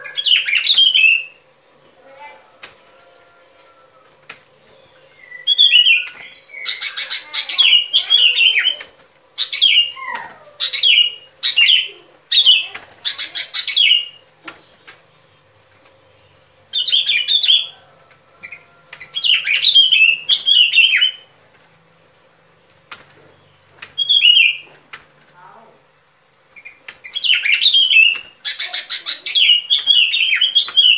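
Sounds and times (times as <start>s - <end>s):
bulbul song: 0.0s - 15.3s.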